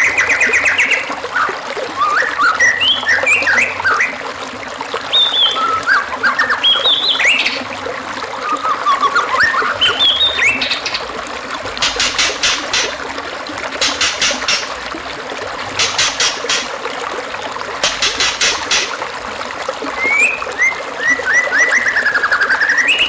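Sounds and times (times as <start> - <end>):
songbird whistling and trilling: 0.0 - 4.2, 5.1 - 7.6, 8.4 - 11.0, 20.0 - 23.0
trickle of running water: 0.0 - 23.0.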